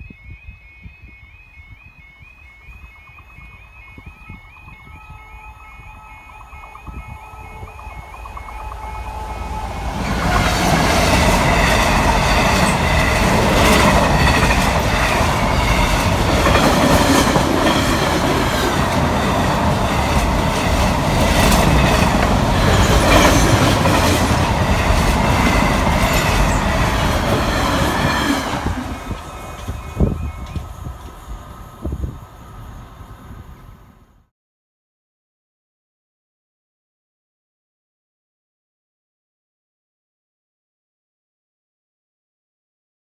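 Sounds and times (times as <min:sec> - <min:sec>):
diesel locomotive passing: 0:01.2 - 0:34.3
train wagons rumbling over rails: 0:02.6 - 0:34.1.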